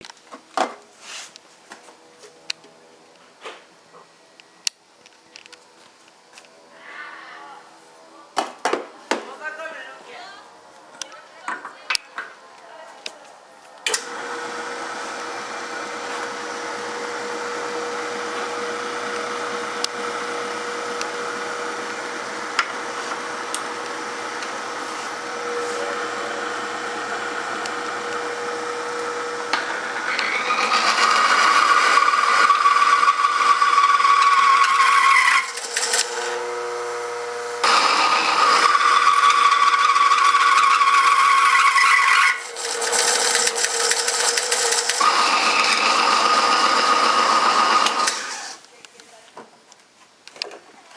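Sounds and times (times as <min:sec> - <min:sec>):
small motor whirring and grinding: 0:13.9 - 0:48.7.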